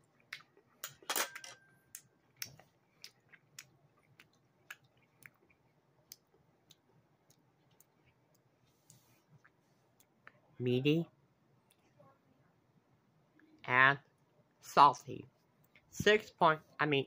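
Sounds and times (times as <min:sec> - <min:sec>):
person chewing wetly: 0:00.0 - 0:00.8, 0:02.0 - 0:10.4.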